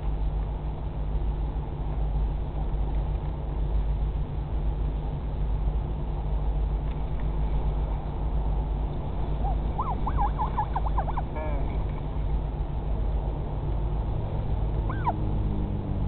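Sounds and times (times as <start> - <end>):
steady low rumble: 0.0 - 16.0
albatross chick calling: 9.4 - 11.9, 14.9 - 15.2.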